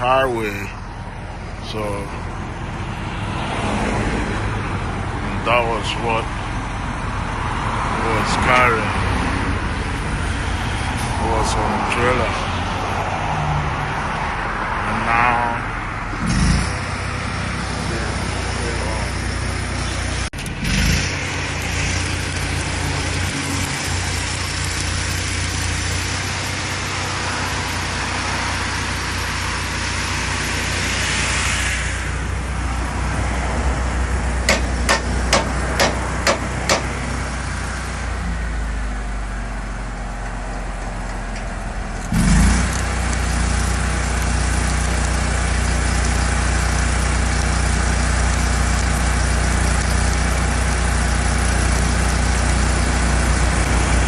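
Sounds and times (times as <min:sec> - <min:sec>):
engine humming: 0:00.0 - 0:54.0
sharp clicks: 0:34.5 - 0:36.9.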